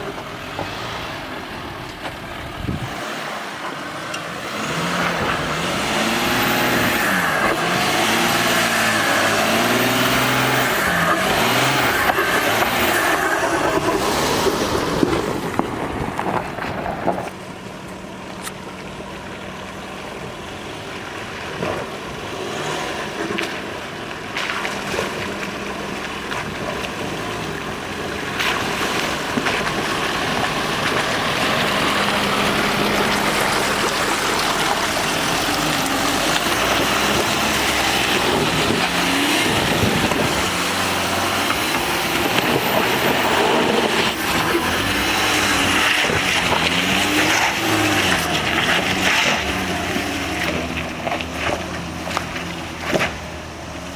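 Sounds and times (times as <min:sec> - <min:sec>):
diesel engine revving off-road: 0:00.0 - 0:53.9
rushing noise: 0:04.6 - 0:17.4.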